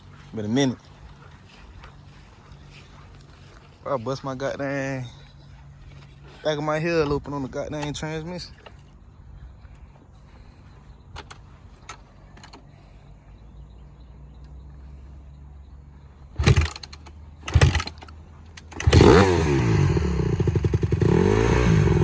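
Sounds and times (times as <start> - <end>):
dirt bike engine starting and revving: 16.2 - 22.0.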